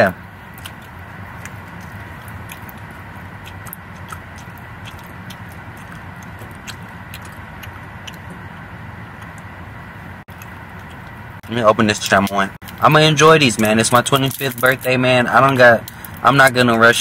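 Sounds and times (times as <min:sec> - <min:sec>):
low car cabin hum: 0:00.0 - 0:17.0
chewing gummy candy: 0:00.5 - 0:09.5, 0:11.9 - 0:17.0
wet mouth clicks: 0:00.6 - 0:08.4.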